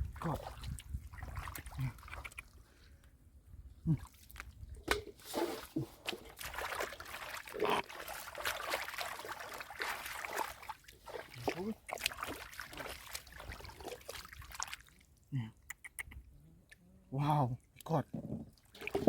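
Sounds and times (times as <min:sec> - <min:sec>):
shallow water sloshing and splashing: 0:00.0 - 0:03.0, 0:04.0 - 0:15.2, 0:18.5 - 0:19.0.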